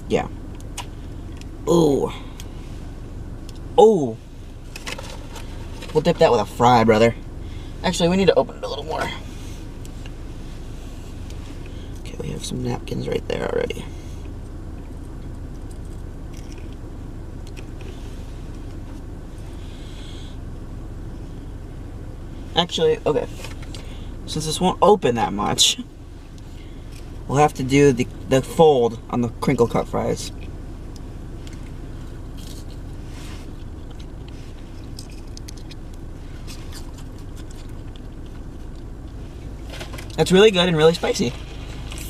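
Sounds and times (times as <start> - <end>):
car heater hum: 0.0 - 42.0
wet chewing: 30.9 - 39.2.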